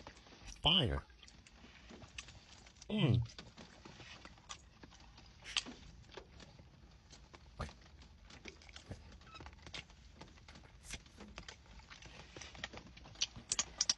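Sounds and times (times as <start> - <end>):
person chewing wetly: 0.0 - 13.9.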